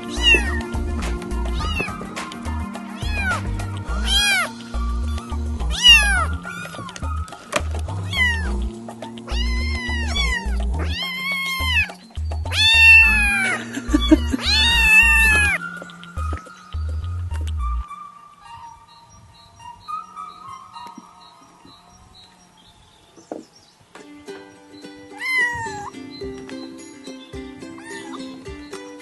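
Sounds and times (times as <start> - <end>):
kittens meowing: 0.0 - 17.8, 25.1 - 26.3, 27.7 - 28.5
background music with bass beat: 0.0 - 17.9.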